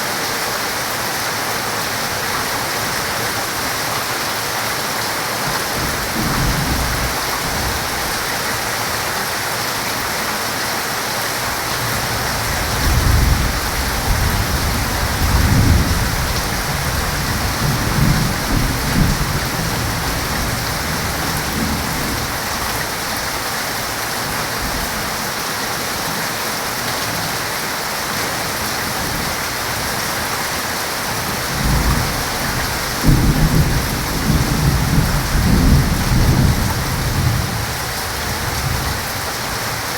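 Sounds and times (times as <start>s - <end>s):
heavy rain: 0.0s - 39.9s
thunder rumbling: 5.7s - 8.8s, 11.7s - 22.8s, 28.9s - 39.1s.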